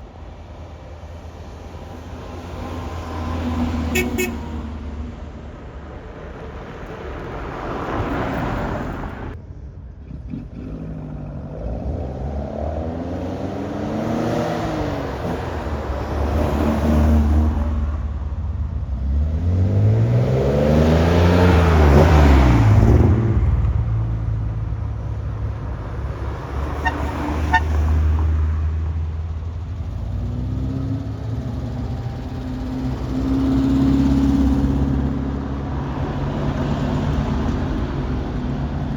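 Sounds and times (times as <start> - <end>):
car engines revving: 10.0 - 38.9.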